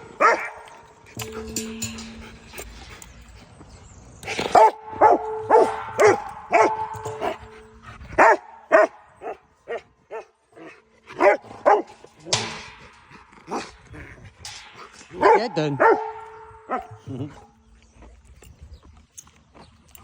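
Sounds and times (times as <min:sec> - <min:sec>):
dog barking: 0:00.2 - 0:00.8, 0:04.5 - 0:07.4, 0:08.2 - 0:10.3, 0:11.2 - 0:11.9, 0:15.2 - 0:17.0.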